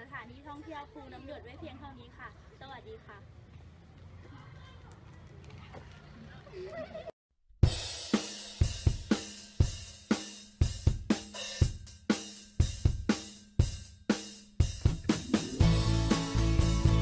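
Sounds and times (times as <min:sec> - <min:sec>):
drum kit playing: 0:07.6 - 0:17.0
bass and backing instruments: 0:14.6 - 0:17.0.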